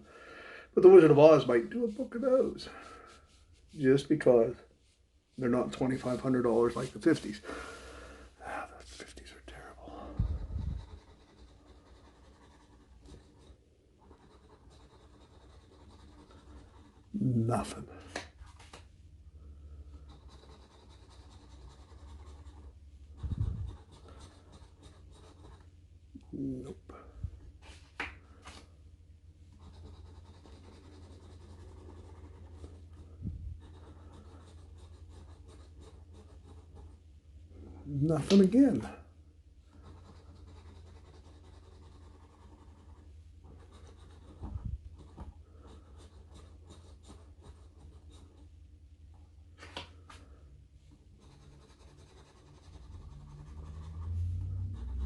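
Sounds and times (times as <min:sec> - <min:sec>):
scratching lottery ticket: 0:05.5 - 0:07.4, 0:10.4 - 0:17.8, 0:19.7 - 0:25.8, 0:29.4 - 0:37.0, 0:39.7 - 0:48.6, 0:50.3 - 0:55.0.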